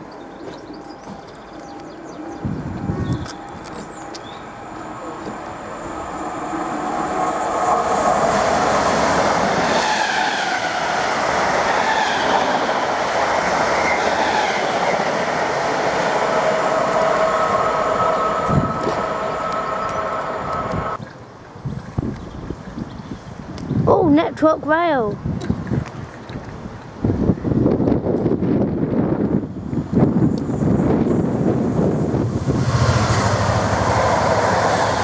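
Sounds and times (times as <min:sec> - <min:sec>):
train wheels rumbling on rails: 0:00.0 - 0:21.0, 0:27.6 - 0:35.0
wheels squealing: 0:16.1 - 0:21.0.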